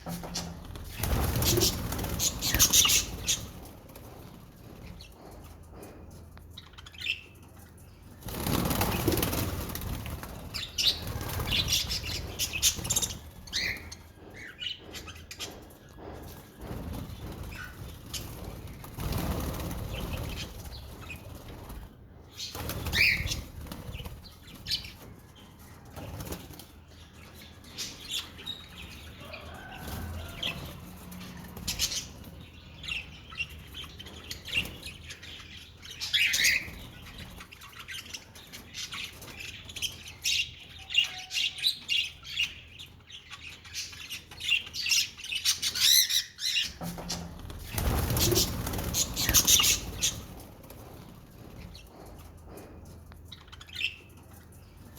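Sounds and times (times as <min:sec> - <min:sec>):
wings flapping: 0:00.3 - 0:05.0, 0:08.2 - 0:13.6, 0:16.7 - 0:24.8, 0:46.8 - 0:51.8.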